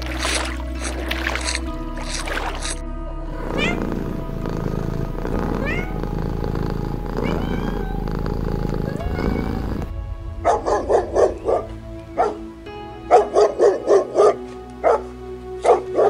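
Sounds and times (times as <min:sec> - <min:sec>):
cat meowing: 0:03.5 - 0:03.9, 0:05.6 - 0:06.0, 0:07.1 - 0:08.2, 0:08.8 - 0:09.9
dog barking: 0:10.4 - 0:12.5, 0:13.1 - 0:16.0.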